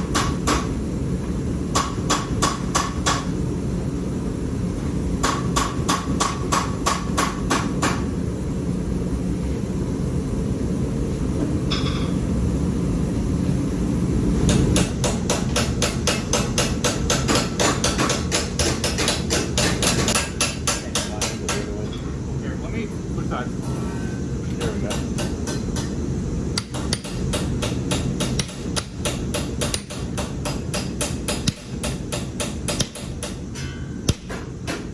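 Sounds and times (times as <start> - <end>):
hammer striking metal: 14.5 - 21.8, 26.6 - 34.9.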